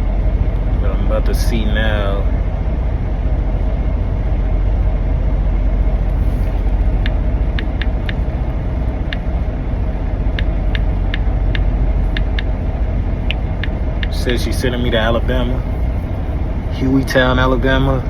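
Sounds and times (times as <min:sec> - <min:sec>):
diesel truck engine idling: 0:00.0 - 0:18.0.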